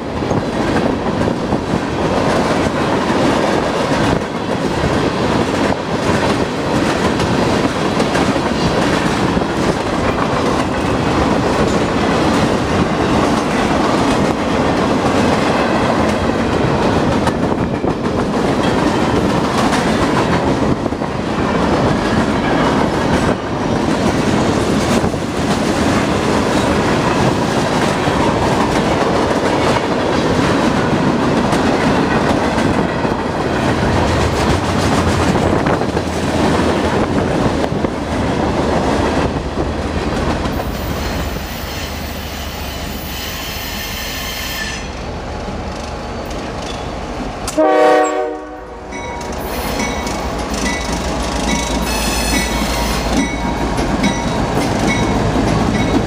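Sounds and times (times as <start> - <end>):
diesel locomotive rumble: 0.0 - 43.9
freight cars rumbling on rails: 0.0 - 56.0
wheels clattering on rail joints: 0.2 - 42.2, 45.4 - 47.6, 48.9 - 56.0
train horn blast: 47.5 - 49.3, 51.8 - 53.1.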